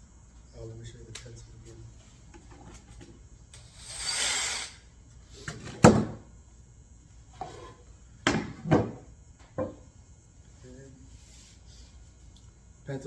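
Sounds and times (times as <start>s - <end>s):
object knocking on workbench: 8.2s - 9.8s.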